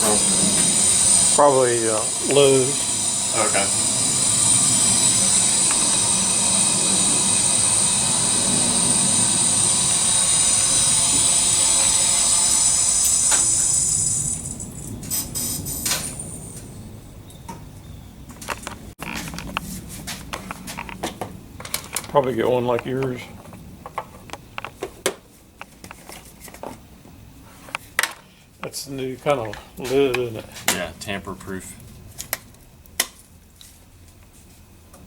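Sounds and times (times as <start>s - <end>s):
hissing machine with whine: 0.0s - 17.6s.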